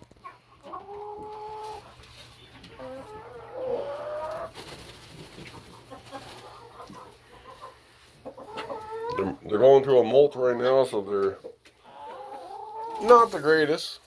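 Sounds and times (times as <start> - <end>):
chickens calling: 0.1 - 13.9.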